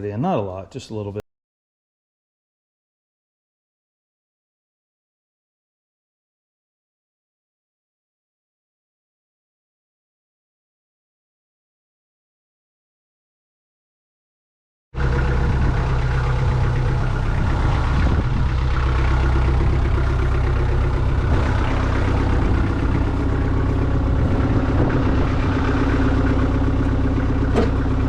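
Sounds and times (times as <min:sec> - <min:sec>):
tractor diesel engine idling: 0:15.0 - 0:28.0.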